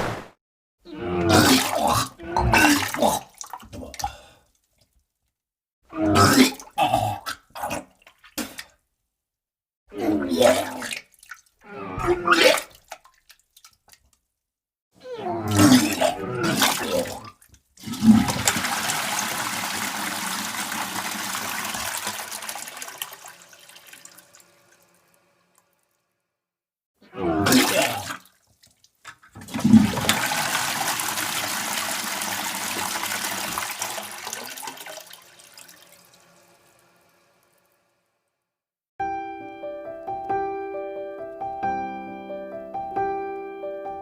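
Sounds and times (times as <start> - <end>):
rush of water: 18.0 - 24.2.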